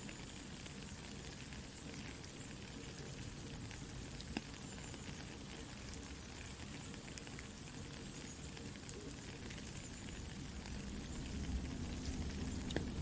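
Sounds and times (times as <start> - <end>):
soft rain falling: 0.0 - 13.0
campfire crackling: 6.5 - 13.0.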